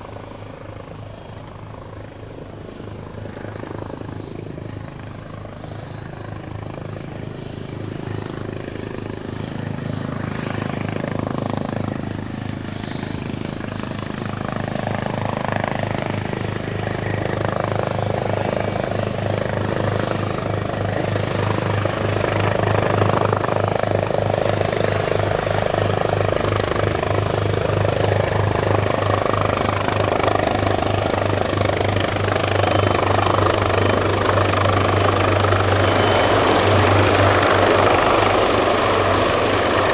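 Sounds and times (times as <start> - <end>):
helicopter rotor beating: 0.0 - 39.9
high turbine whine: 0.0 - 39.9.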